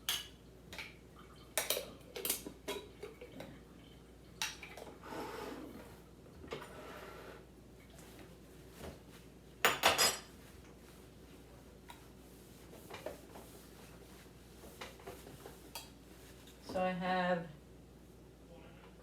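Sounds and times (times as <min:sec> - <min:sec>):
dishes clinking: 0:09.6 - 0:10.4.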